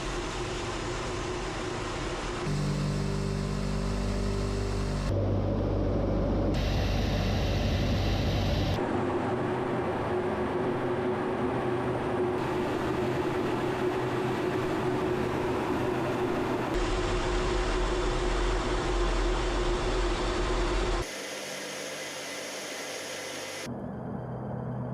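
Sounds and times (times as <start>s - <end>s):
military aircraft engine: 0.0s - 24.9s
steady hum: 0.0s - 24.9s.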